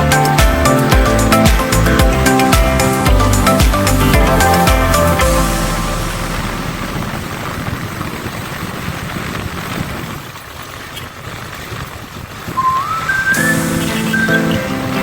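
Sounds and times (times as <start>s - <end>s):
rising tone: 0.0s - 8.6s
rushing wind and road noise: 0.2s - 15.0s.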